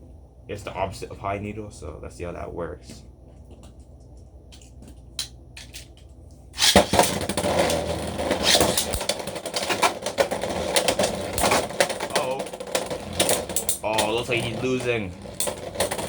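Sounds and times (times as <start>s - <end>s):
spinning tops clattering together: 6.6s - 16.0s.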